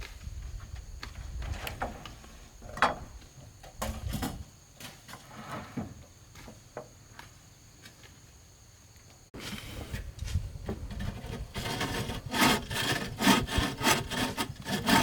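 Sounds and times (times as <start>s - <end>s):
wooden knocks and clatter: 1.0s - 6.9s.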